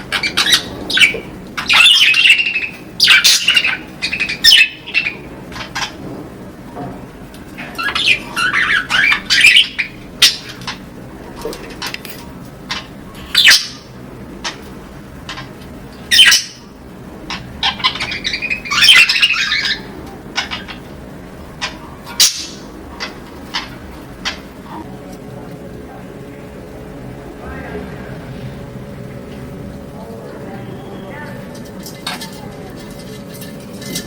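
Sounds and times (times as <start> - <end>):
budgerigars chattering: 0.0 - 6.0, 7.6 - 10.8, 12.7 - 14.6, 16.1 - 16.7, 17.3 - 20.9, 21.6 - 24.8
budgerigar squawks and chirps: 0.1 - 5.2, 7.8 - 10.5, 16.1 - 16.6, 17.3 - 20.8.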